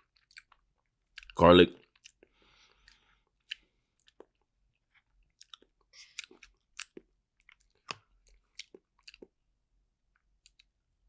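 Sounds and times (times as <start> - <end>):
person chewing with wet smacks: 0.0 - 9.4, 10.1 - 10.8.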